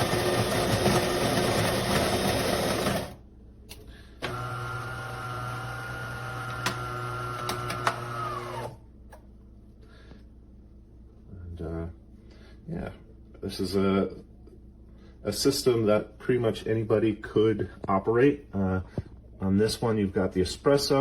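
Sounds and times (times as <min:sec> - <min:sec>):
coffee grinder grinding beans: 0:00.0 - 0:03.2, 0:04.3 - 0:08.7
espresso machine motor hum: 0:04.2 - 0:08.8.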